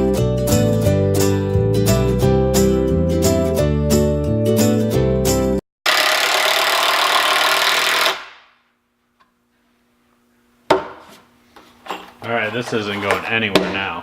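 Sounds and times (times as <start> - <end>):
power tool running: 5.9 - 8.5.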